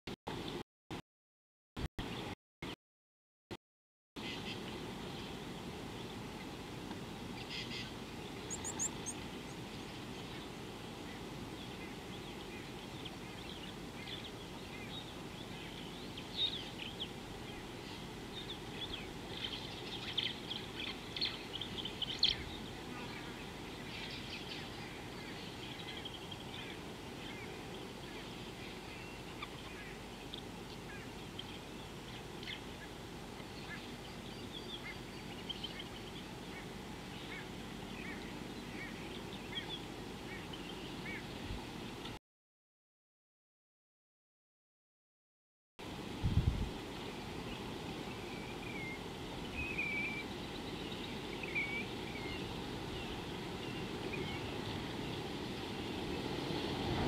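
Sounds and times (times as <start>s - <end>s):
wild birds chirping: 4.2s - 42.1s, 46.8s - 57.0s
low background noise: 4.2s - 42.2s.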